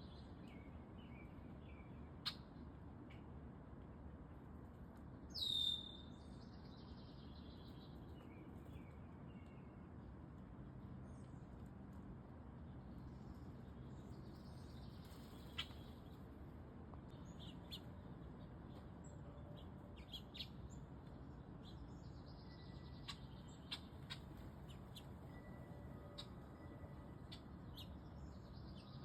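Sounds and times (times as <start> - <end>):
low steady hiss: 0.0 - 29.0
small birds chirping: 5.3 - 10.2, 12.6 - 16.4, 17.0 - 29.0.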